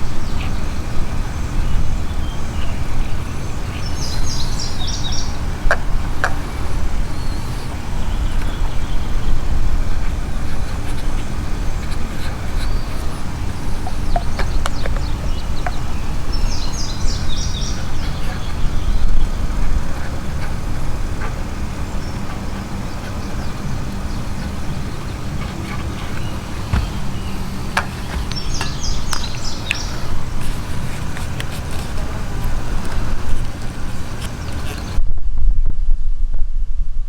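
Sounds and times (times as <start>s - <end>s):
bird chirping: 0.0s - 35.0s
steady low rumble: 0.0s - 37.0s.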